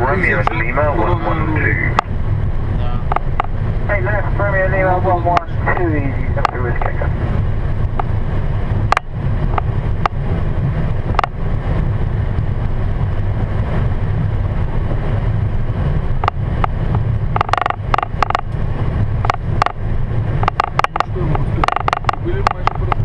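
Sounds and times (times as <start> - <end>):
low engine rumble: 0.0 - 23.0.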